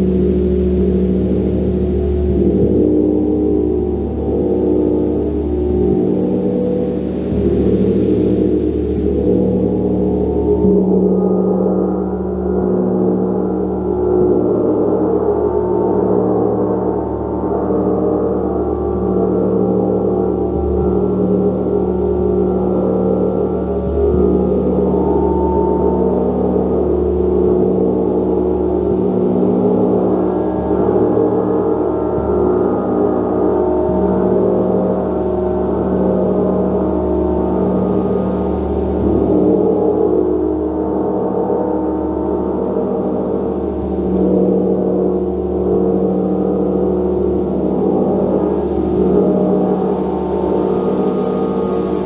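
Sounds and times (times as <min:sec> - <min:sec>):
gong ringing: 0:45.7 - 0:52.0.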